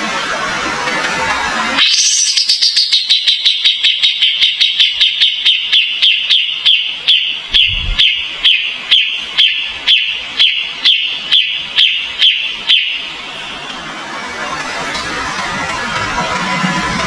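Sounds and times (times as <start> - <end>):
low thump: 7.6 - 8.3.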